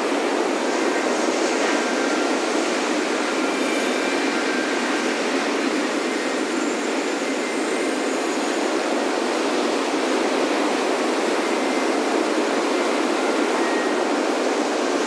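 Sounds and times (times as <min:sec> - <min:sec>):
ocean surf washing on beach: 0:00.0 - 0:15.0
faint wind chimes: 0:00.4 - 0:15.0.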